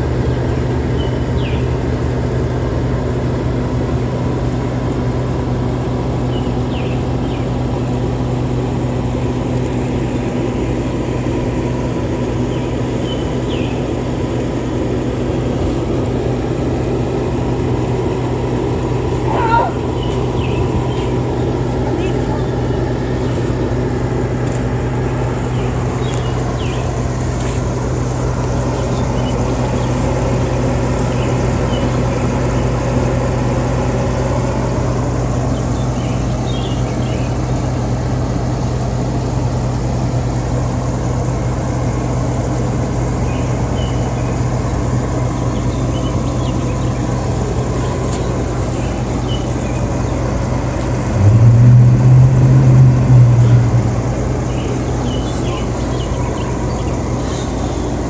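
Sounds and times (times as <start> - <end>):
motor humming: 46.8 - 57.2.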